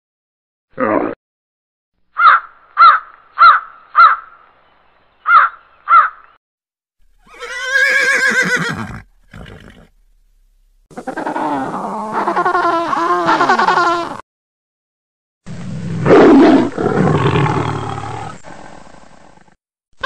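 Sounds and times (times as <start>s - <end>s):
horse whinnying: 7.2s - 9.9s.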